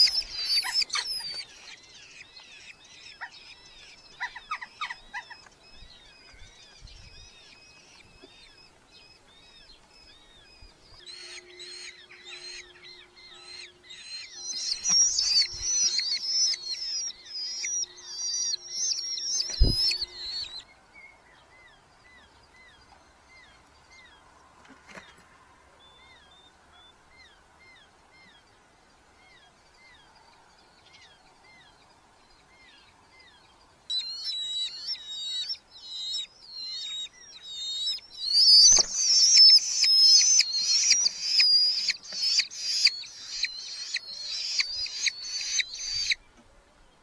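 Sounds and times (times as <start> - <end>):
falcon chicks calling shrilly: 0.0 - 20.6, 33.9 - 46.2.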